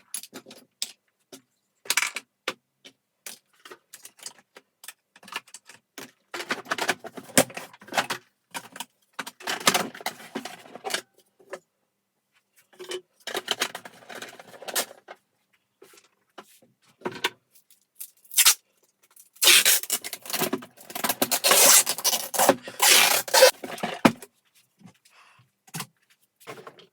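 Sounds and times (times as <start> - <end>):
hands rubbing and scraping parts: 19.3 - 25.1.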